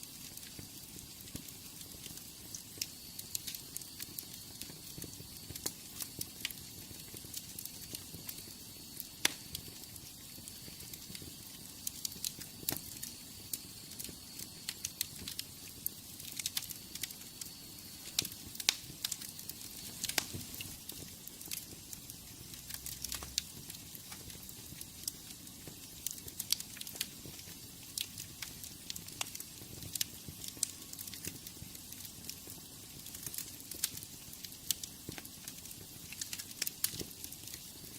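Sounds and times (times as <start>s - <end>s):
fire hissing: 0.0s - 37.9s
wood fire crackling and popping: 0.0s - 37.9s.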